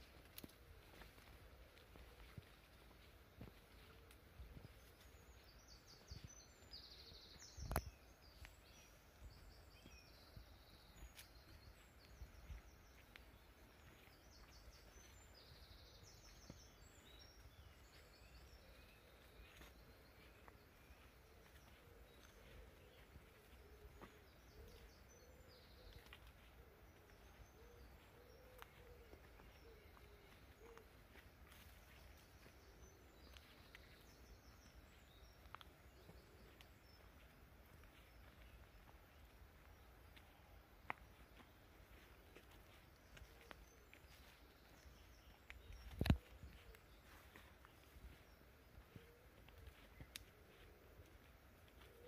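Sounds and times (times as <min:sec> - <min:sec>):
light ticks: 0:07.6 - 0:08.5, 0:49.9 - 0:50.4
small bird calling: 0:09.6 - 0:37.3.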